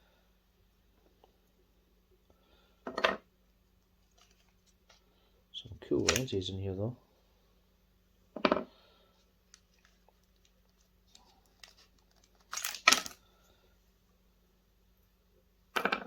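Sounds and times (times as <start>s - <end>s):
plastic parts cracking: 6.0s - 6.3s, 9.5s - 13.2s.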